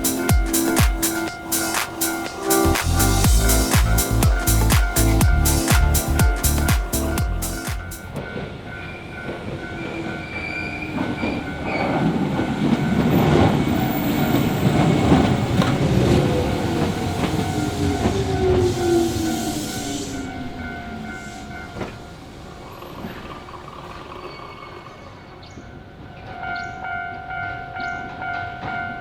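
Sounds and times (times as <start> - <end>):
level crossing warning bell: 0.0 - 29.0
train wheels clattering on rails: 7.7 - 26.8.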